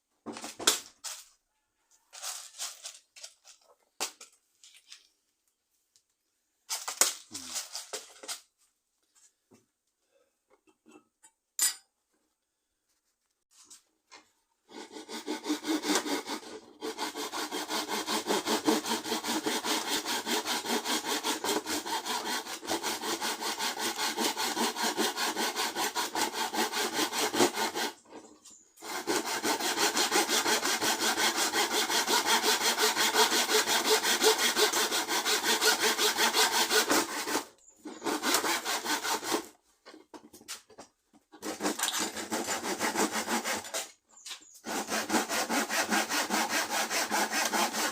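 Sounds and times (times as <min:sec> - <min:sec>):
saw cutting wood: 0:14.6 - 0:39.6, 0:41.3 - 0:47.9.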